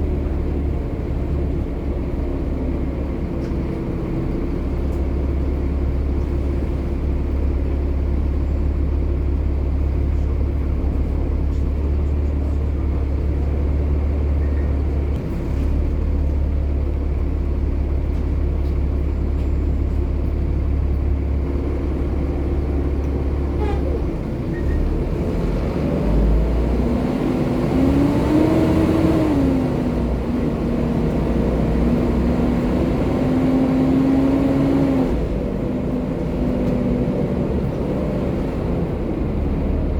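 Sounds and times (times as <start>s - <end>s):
bus diesel engine idling: 0.0s - 39.9s
bus engine whine driving off: 0.0s - 39.9s.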